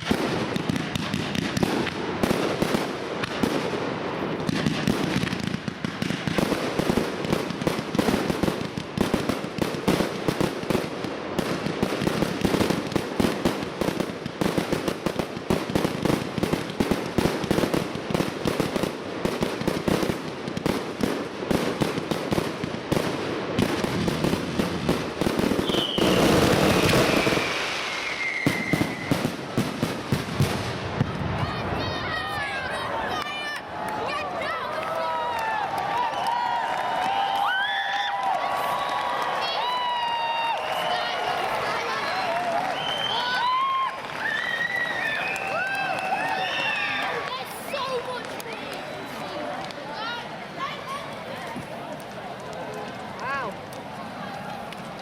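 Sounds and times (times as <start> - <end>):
firework bursts and bangs: 0.0 - 55.0
falling firework whistle: 25.6 - 29.3, 42.6 - 47.1.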